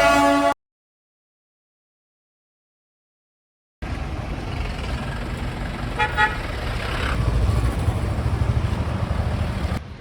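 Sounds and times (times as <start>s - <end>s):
vehicle horn toots: 0.0s - 0.6s, 6.0s - 6.4s
low traffic rumble: 3.8s - 10.0s.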